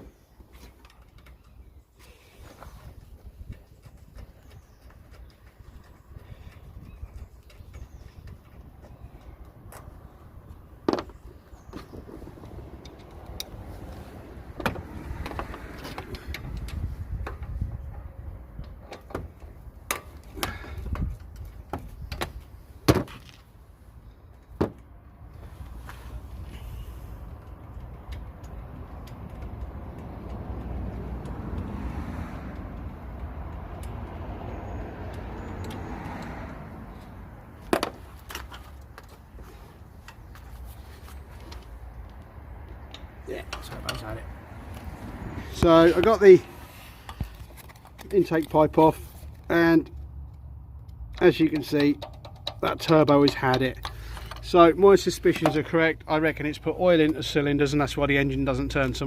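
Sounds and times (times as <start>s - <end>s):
hand tools clicking and clanking: 0.4s - 23.3s, 35.0s - 45.0s, 45.6s - 57.8s.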